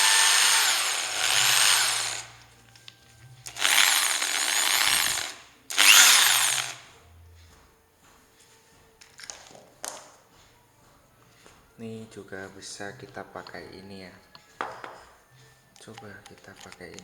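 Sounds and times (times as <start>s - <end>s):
electric drill motor whine: 0.0s - 2.5s, 3.4s - 6.9s.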